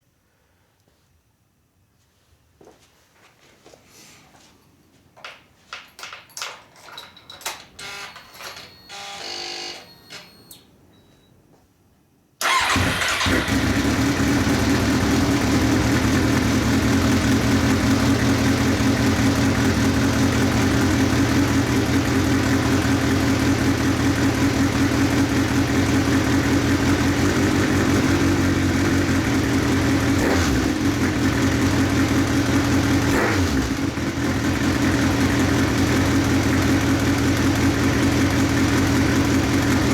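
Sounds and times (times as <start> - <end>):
motorcycle engine idling: 12.4 - 39.9.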